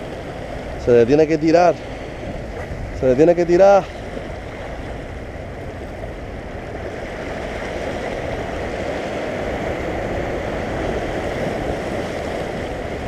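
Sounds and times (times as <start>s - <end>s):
waves splashing on rocky shore: 0.0s - 13.0s
wind on microphone: 0.0s - 13.0s.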